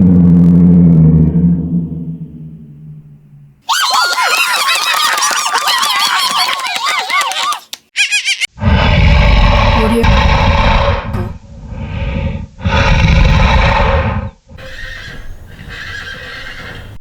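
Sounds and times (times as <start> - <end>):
horse neighing: 14.6 - 16.9.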